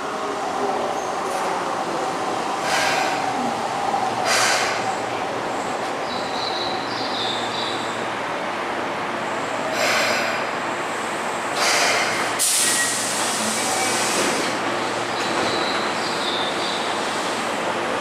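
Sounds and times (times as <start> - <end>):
train running noise: 0.0 - 18.0
air hissing: 11.6 - 15.0.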